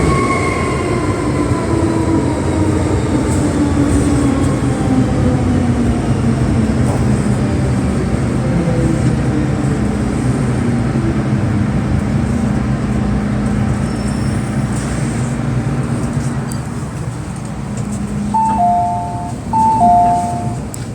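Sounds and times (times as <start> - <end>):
train wheels rumbling on rails: 0.0 - 20.9.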